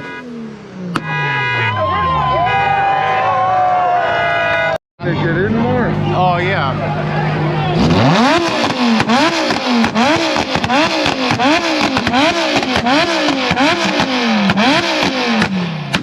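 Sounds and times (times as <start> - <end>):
car engine revving against limiter: 7.1 - 16.0
exhaust pops and cracks: 8.4 - 16.0.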